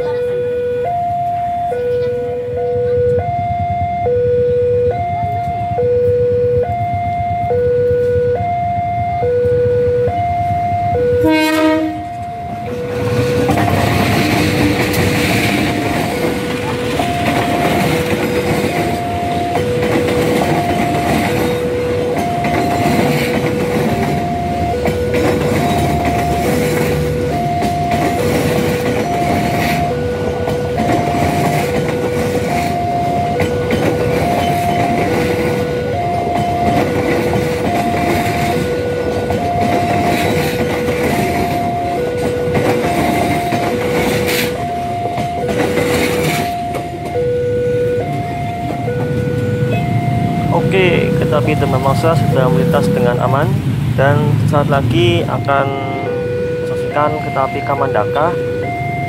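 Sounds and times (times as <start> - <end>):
level-crossing alarm two-note warning: 0.0 - 59.0
train running and rail noise: 0.0 - 59.0
train horn blast: 11.2 - 13.1, 55.6 - 58.7.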